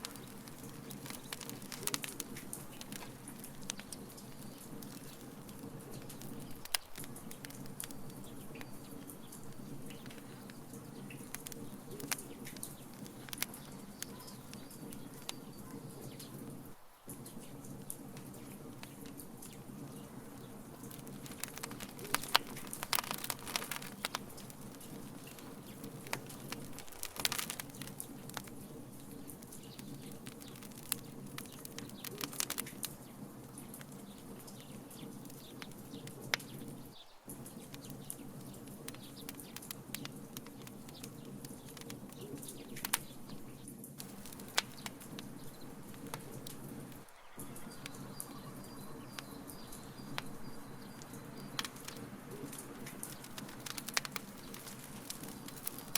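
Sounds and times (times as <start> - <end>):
fire low rumble: 0.0 - 55.9
wood fire crackling and popping: 0.0 - 55.9.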